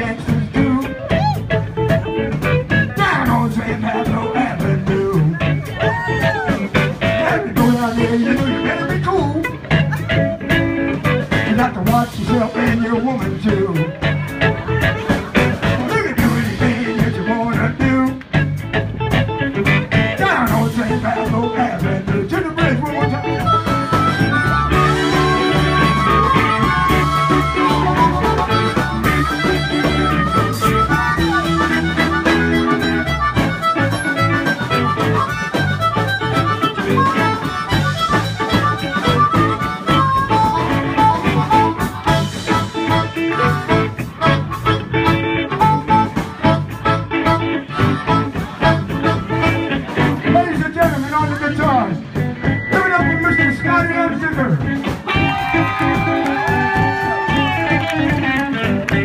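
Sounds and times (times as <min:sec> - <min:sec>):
bass guitar: 0:00.0 - 0:59.0
drums: 0:00.0 - 0:59.0
blues harmonica solo: 0:18.4 - 0:59.0.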